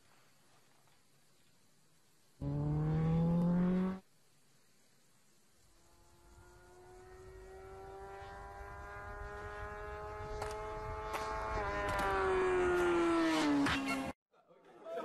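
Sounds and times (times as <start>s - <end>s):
motorcycle engine at high revs: 2.4s - 4.0s, 5.8s - 14.1s.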